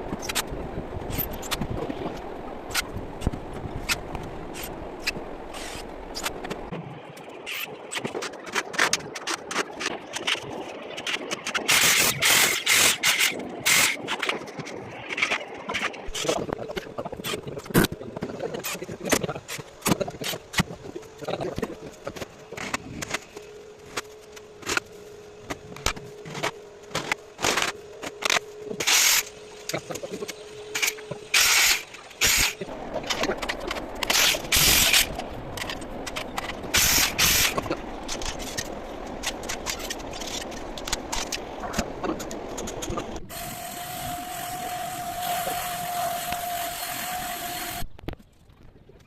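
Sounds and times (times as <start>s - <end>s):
steady hum: 0.0s - 48.2s
steady hiss with held tone: 18.4s - 33.1s, 43.2s - 48.0s
hissing strokes: 43.3s - 47.8s.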